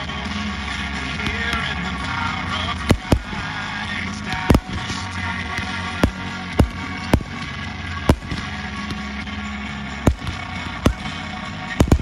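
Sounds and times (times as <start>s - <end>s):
fireworks bangs: 2.8s - 3.5s, 4.4s - 5.1s, 5.8s - 7.5s, 8.1s - 8.6s, 10.1s - 11.1s, 11.8s - 12.0s.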